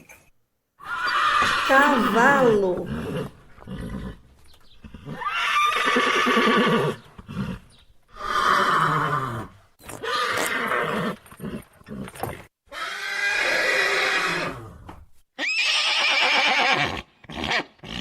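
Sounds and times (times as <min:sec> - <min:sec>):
horse neighing: 0:00.8 - 0:01.7, 0:04.8 - 0:11.2, 0:15.4 - 0:17.7.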